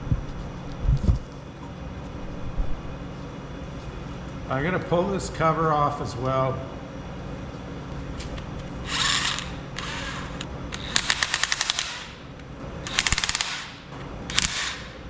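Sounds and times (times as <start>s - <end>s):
power wrench rapid clicking: 8.9s - 12.2s, 12.9s - 14.9s.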